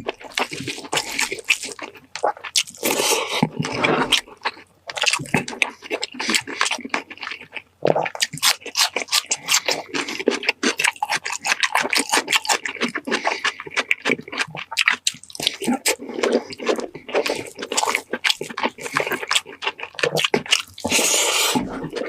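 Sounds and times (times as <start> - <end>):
wet chewing sounds: 0.0 - 22.0.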